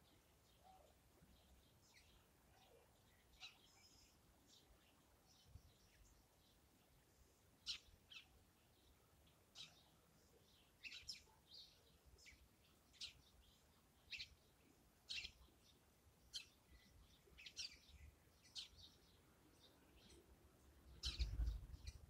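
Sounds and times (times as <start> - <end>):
faint bird chirps: 0.0 - 22.0.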